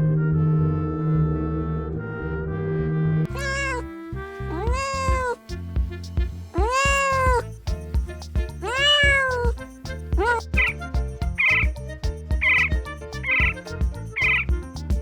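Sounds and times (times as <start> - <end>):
cat meowing: 3.3 - 3.9, 4.5 - 5.4, 6.6 - 7.4, 8.6 - 9.6, 10.2 - 10.7.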